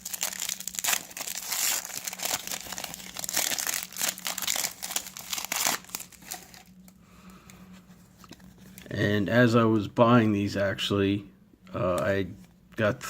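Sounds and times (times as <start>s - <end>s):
card pack wrappers crinkling: 0.0s - 7.4s.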